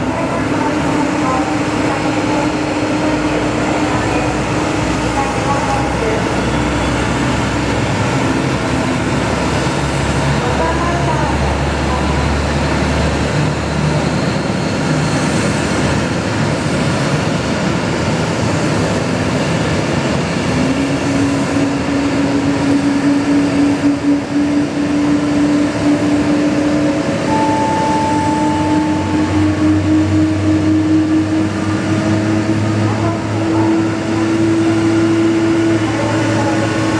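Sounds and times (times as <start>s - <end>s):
jet turbine noise: 0.0s - 36.9s
engine whine rising in pitch: 20.4s - 36.9s.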